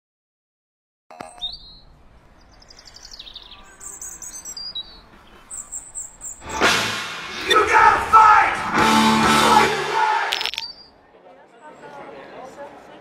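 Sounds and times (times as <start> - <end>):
small birds chirping and twittering: 1.2 - 6.4.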